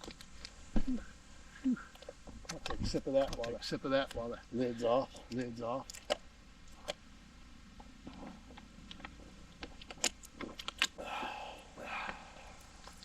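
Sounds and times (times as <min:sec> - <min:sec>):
breathy gulping: 0:10.3 - 0:13.0.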